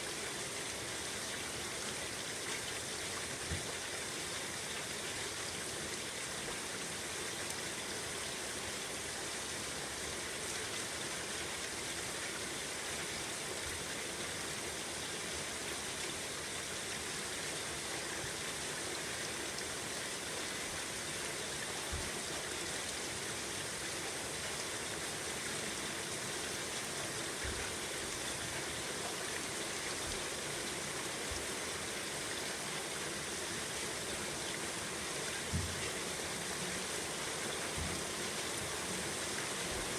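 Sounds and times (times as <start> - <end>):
steady rain falling: 12.6 - 39.9.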